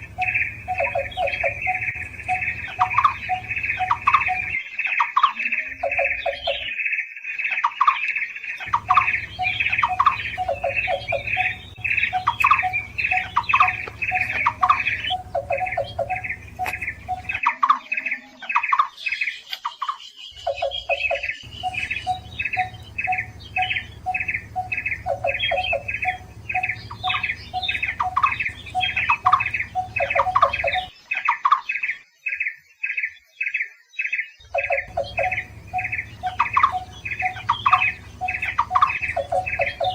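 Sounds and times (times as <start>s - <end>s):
low hum: 0.0s - 4.6s, 8.6s - 17.4s, 21.4s - 30.9s, 34.6s - 39.9s
birds calling: 0.0s - 39.9s
lower series of bird notes: 0.0s - 39.9s.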